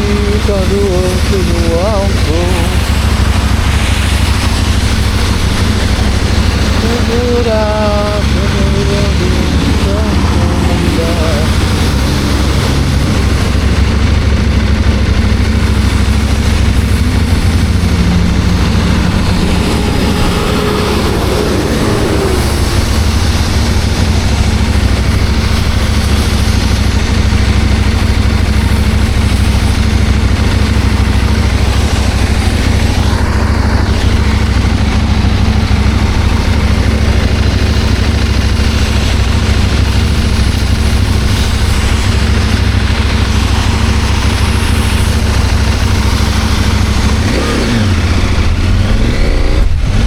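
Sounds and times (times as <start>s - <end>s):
motorcycle engine running: 0.0s - 50.0s
wind rushing: 7.5s - 26.9s.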